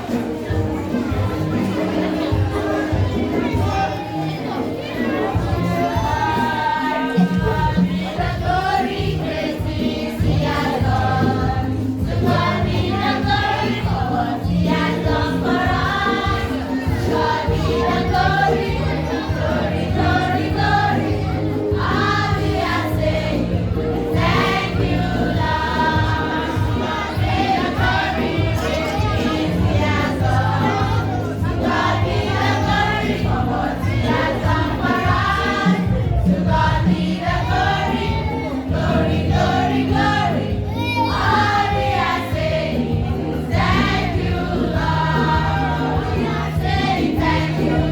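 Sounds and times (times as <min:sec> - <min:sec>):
group singing: 0:00.0 - 0:47.9
instrumental bass accompaniment: 0:10.3 - 0:47.9.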